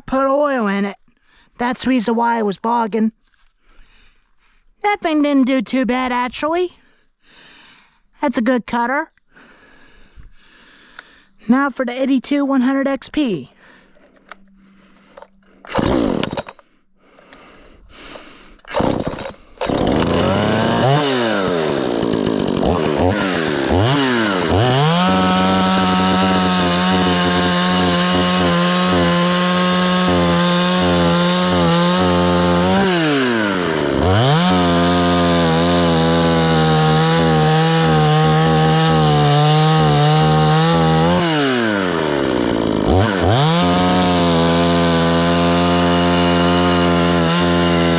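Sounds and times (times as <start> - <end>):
chainsaw pull-start attempts: 13.8 - 47.9
chainsaw revving: 14.8 - 16.6, 18.1 - 47.9.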